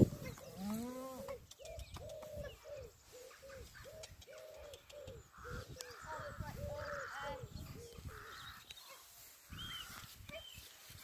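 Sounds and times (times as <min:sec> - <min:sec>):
bird cooing: 0:00.2 - 0:08.4.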